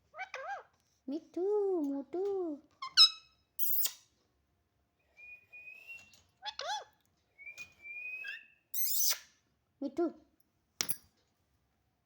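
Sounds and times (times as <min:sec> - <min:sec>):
parrot squawks: 0:02.8 - 0:04.0
parrot whistling: 0:07.5 - 0:09.2.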